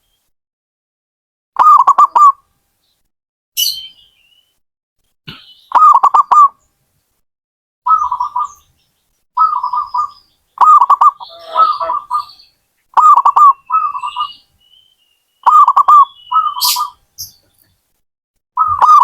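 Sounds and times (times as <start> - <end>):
dove cooing: 5.7 - 6.5, 7.9 - 8.6, 9.4 - 12.4, 13.0 - 14.3, 15.4 - 17.0, 18.6 - 19.0
brief high-pitched bird call: 9.4 - 14.4.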